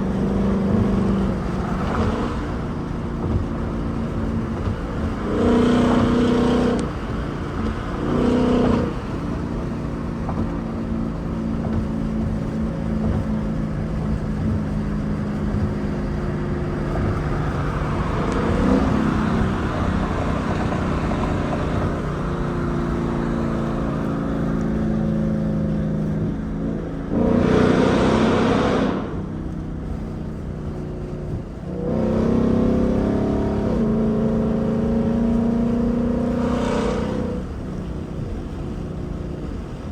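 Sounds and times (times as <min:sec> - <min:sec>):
car engine cruising: 0:00.0 - 0:39.9.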